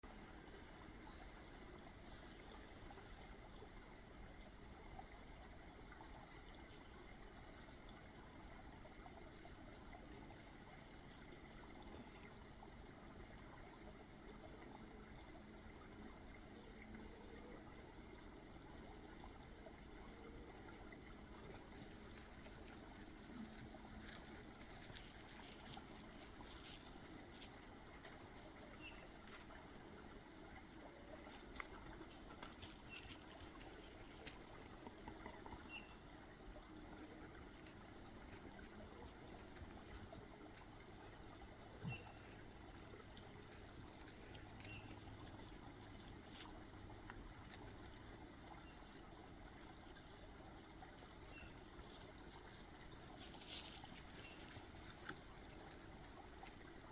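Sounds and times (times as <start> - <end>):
small clicks and crackles: 21.5 - 29.8, 30.5 - 35.5, 43.4 - 48.2, 50.9 - 56.9.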